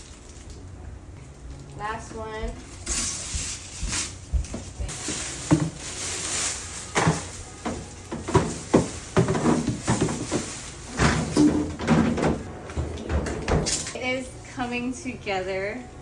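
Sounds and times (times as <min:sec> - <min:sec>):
knocks and clatter of handling: 0:06.9 - 0:14.0.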